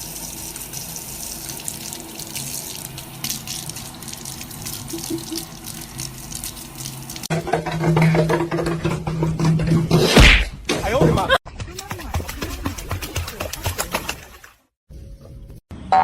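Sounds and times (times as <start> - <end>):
water running from a tap: 0.0 - 7.3.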